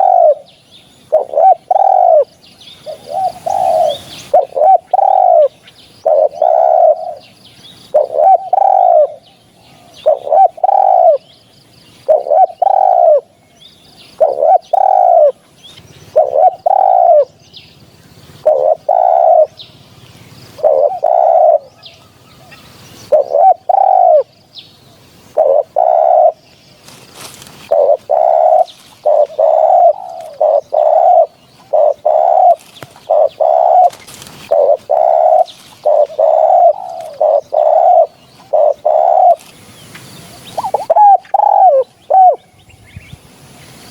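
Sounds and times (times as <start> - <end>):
dove cooing: 0.0 - 11.3, 12.0 - 13.4, 14.0 - 42.5
small birds chirping: 0.0 - 43.9.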